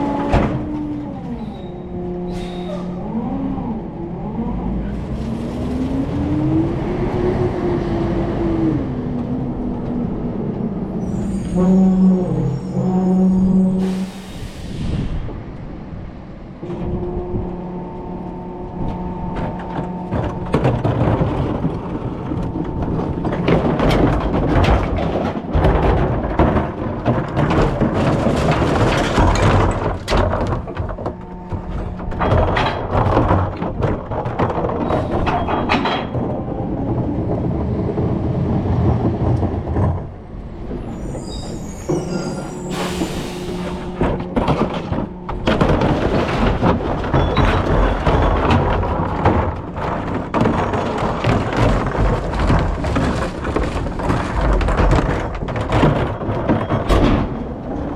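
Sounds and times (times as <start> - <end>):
truck engine and hydraulics whine: 0.0 - 24.6, 28.5 - 50.1
recyclables clattering and crashing: 18.7 - 40.2, 43.6 - 57.9.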